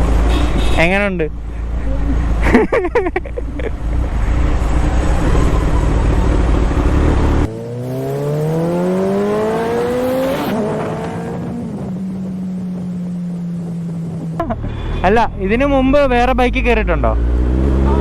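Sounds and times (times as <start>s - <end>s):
motorcycle engine accelerating: 3.8s - 15.0s, 17.0s - 18.0s
heavy wind rush: 8.6s - 15.2s.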